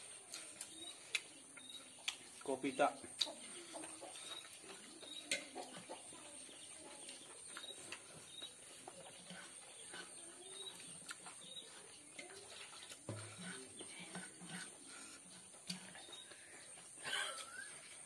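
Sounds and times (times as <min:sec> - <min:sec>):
chewing and wet mouth clicks: 0:00.2 - 0:02.5, 0:03.1 - 0:06.0, 0:07.0 - 0:13.1
faint bird chirps: 0:00.6 - 0:13.9.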